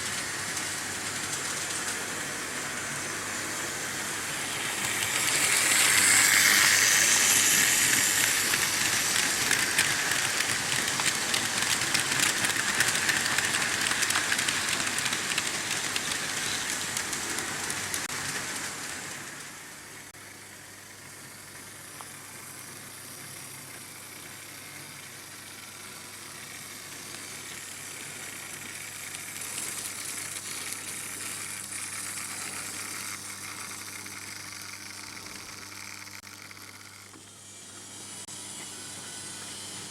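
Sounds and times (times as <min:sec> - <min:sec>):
model train motor noise: 0:00.0 - 0:18.6, 0:20.3 - 0:39.9
model train wheels clattering: 0:04.4 - 0:18.8.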